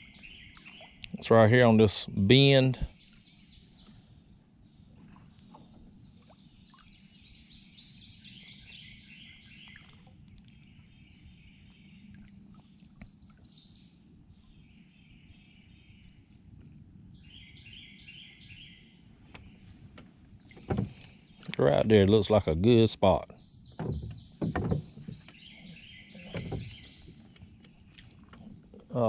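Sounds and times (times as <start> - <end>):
songbird trilling: 17.2 - 19.7, 23.0 - 28.0
light knocks: 23.7 - 25.4.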